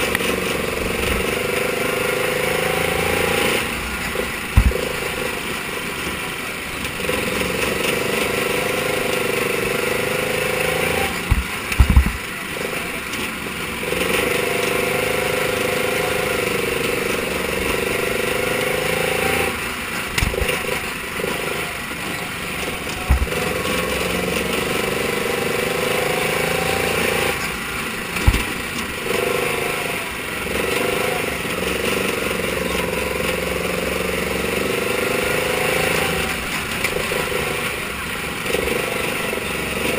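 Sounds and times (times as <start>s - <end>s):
racing car engine revving: 0.0s - 39.9s
short thumps: 4.5s - 5.1s, 11.2s - 12.2s, 20.2s - 20.7s, 22.9s - 23.4s, 28.2s - 28.9s.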